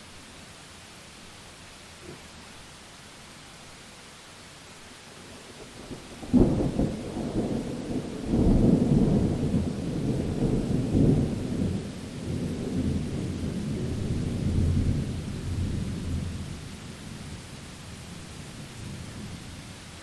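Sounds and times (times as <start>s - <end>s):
steady rain hiss: 0.0s - 20.0s
rolling thunder: 5.8s - 16.8s
thunderclap: 5.9s - 16.3s.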